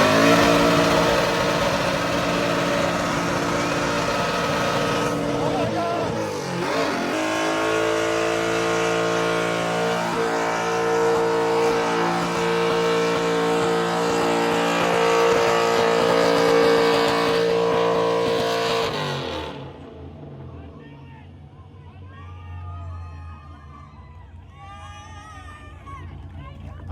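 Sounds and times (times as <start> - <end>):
car engine revving high: 0.0 - 20.7.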